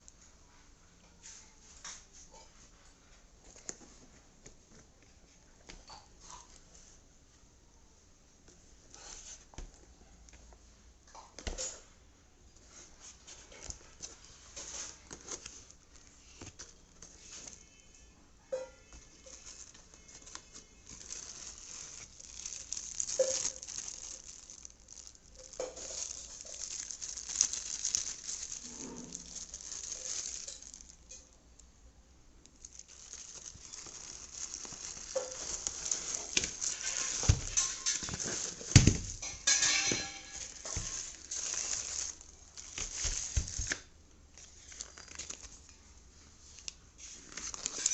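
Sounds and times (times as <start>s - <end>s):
packaging rustling and crinkling: 12.7s - 17.8s, 19.0s - 31.3s, 32.5s - 45.8s, 46.4s - 47.9s.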